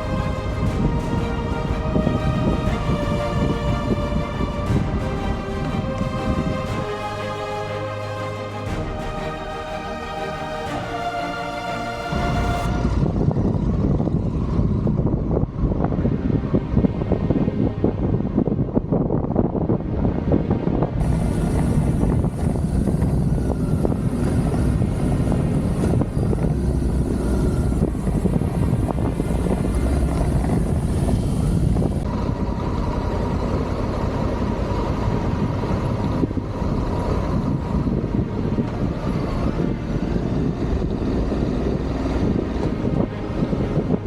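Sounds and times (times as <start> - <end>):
wind rush: 0.0 - 44.0.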